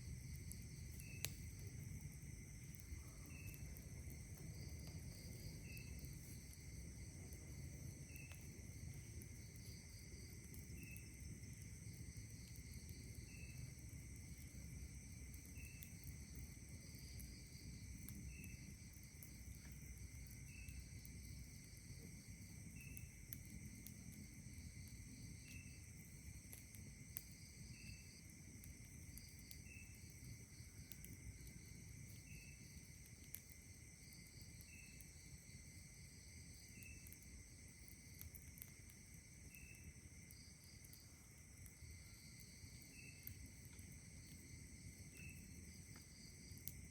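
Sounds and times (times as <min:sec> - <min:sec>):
low rumble of breeze: 0:00.0 - 0:46.9
night insects trilling: 0:00.0 - 0:46.9
short insect chirp: 0:00.5 - 0:01.7, 0:02.4 - 0:10.0, 0:10.6 - 0:11.2, 0:12.4 - 0:14.5, 0:15.4 - 0:16.2, 0:18.0 - 0:21.4, 0:27.4 - 0:28.2, 0:29.1 - 0:33.4, 0:34.0 - 0:35.3, 0:39.4 - 0:46.9.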